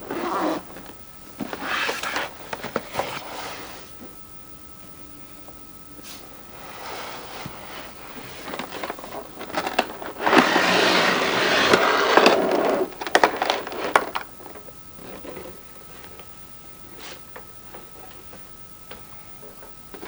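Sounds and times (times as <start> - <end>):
packaging scraping rustle: 0.0 - 4.0, 6.5 - 16.1.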